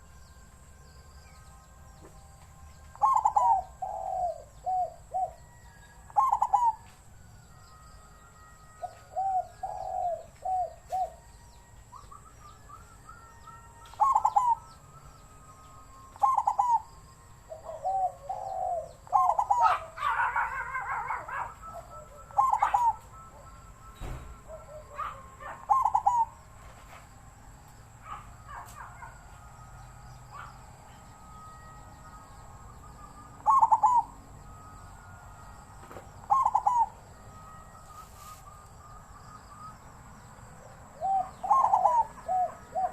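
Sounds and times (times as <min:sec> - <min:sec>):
high bird chirps: 0:01.0 - 0:06.9, 0:08.6 - 0:26.6, 0:29.8 - 0:35.0, 0:35.6 - 0:40.4
dove cooing: 0:02.9 - 0:07.0, 0:08.6 - 0:27.0, 0:30.2 - 0:35.2, 0:35.8 - 0:38.5, 0:39.6 - 0:42.9.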